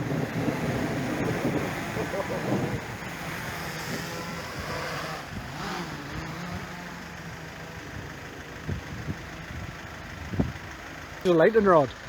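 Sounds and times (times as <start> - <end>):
wind noise on microphone: 0.0 - 5.9, 8.7 - 10.6
vehicle engine idling: 0.0 - 12.0.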